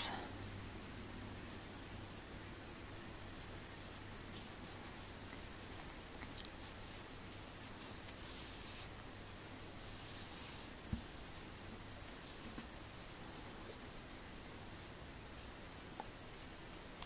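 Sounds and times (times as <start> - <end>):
low steady hum: 0.0 - 17.0
yarn rustling through fabric: 3.2 - 14.0.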